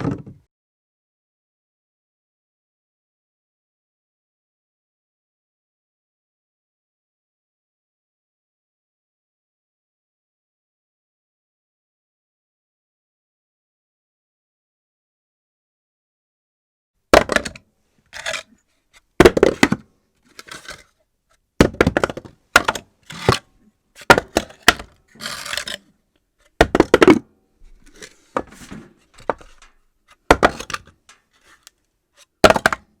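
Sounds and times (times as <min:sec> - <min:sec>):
objects clattering and bouncing: 0:19.2 - 0:21.0, 0:21.6 - 0:25.8, 0:26.6 - 0:31.7.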